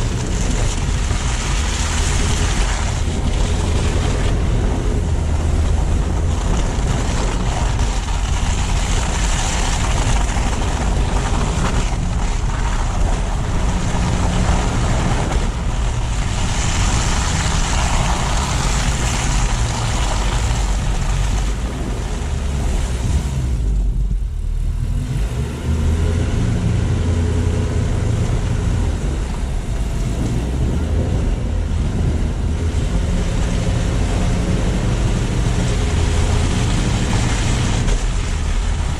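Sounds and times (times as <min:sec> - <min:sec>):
tyres and wind hiss: 0:00.0 - 0:24.3
road and engine rumble: 0:00.0 - 0:38.9.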